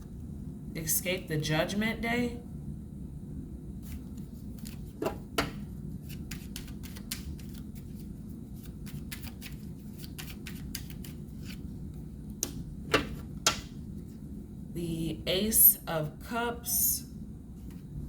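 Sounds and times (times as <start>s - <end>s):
steady low hum: 0.0s - 18.0s
cards being shuffled: 3.8s - 11.7s.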